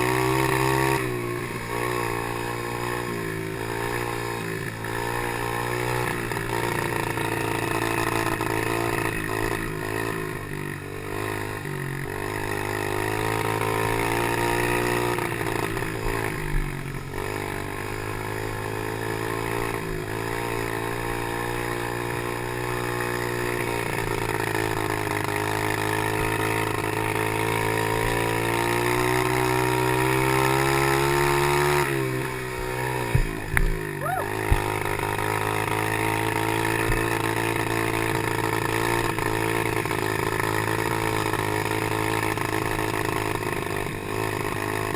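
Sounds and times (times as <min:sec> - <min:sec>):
small motorbike engine revving: 0:00.0 - 0:44.9
sharp knocks: 0:33.1 - 0:33.8.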